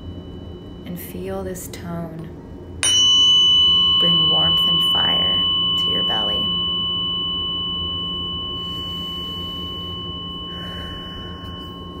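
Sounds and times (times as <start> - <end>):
tuning fork ringing: 0.0 - 1.3, 2.2 - 12.0.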